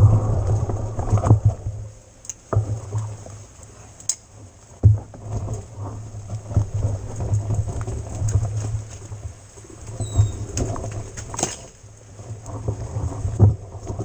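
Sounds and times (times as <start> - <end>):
bike rumble on rough ground: 0.0 - 2.9.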